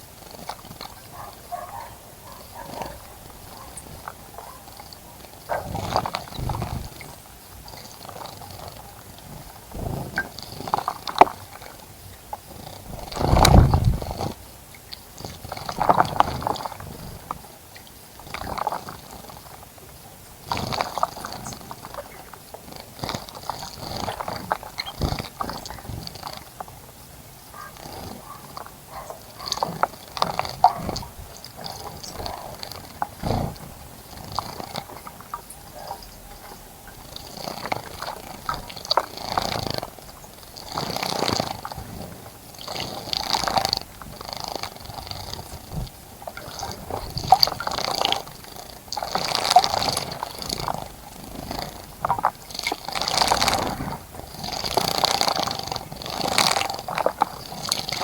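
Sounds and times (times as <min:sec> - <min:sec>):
birds splashing in water: 0:12.9 - 0:17.6.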